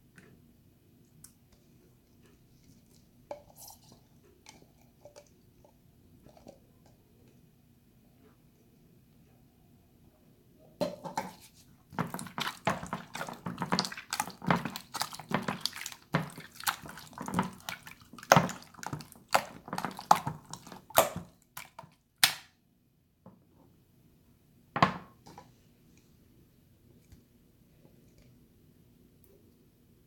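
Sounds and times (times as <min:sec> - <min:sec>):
hands squelching watery slime: 0:11.4 - 0:22.4.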